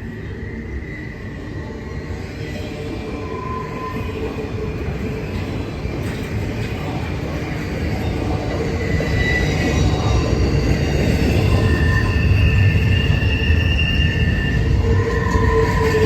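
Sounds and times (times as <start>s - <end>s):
freight train rumble: 0.0s - 16.0s
high wheel squeal: 7.7s - 16.0s.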